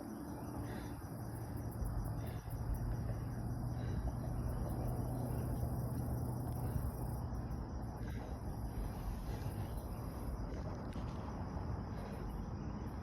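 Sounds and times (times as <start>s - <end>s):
insects droning high-pitched: 0.0s - 13.0s
low steady rumble: 0.0s - 13.0s.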